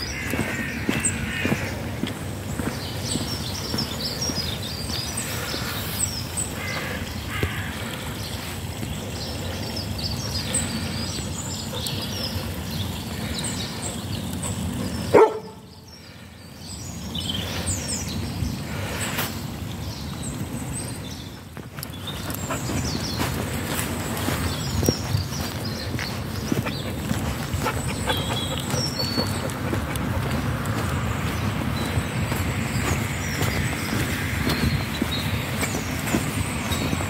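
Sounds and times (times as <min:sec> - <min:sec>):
small birds chirping: 0:00.0 - 0:37.0
wind rumble: 0:16.6 - 0:37.0.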